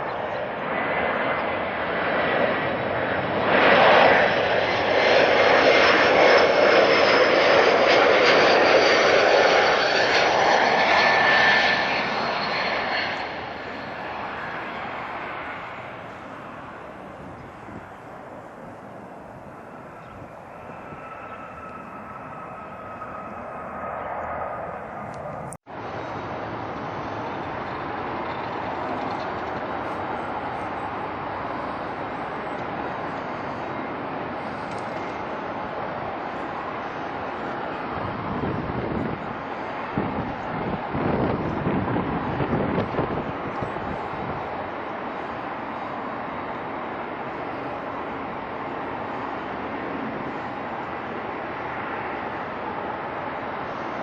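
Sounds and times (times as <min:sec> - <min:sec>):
jet engines roaring and whining: 0:00.0 - 0:54.0.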